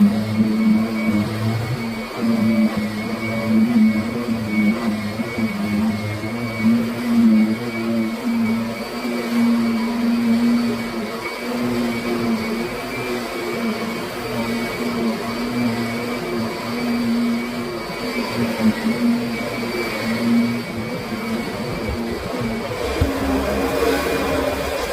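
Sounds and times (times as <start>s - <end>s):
vacuum cleaner running: 0.0s - 24.9s.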